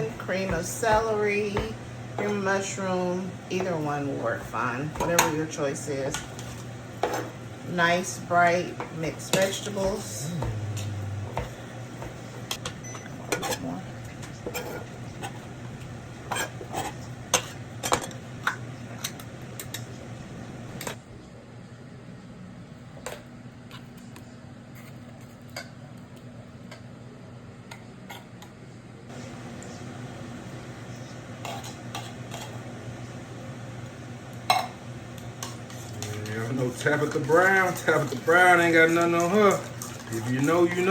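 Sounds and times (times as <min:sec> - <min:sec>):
utensil stirring a pot: 0:00.0 - 0:20.0, 0:30.9 - 0:33.0, 0:34.4 - 0:40.9
low steady hum: 0:00.0 - 0:40.9.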